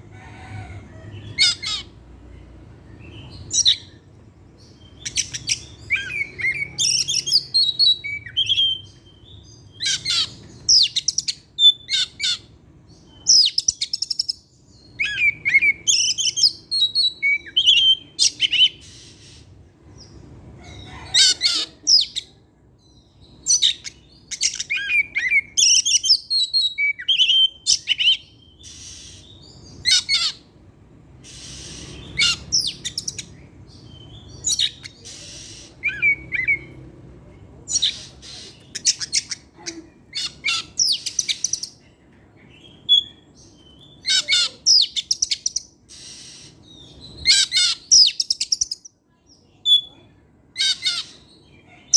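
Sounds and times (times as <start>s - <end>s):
bird singing whistles and chatter: 34.0s - 36.8s.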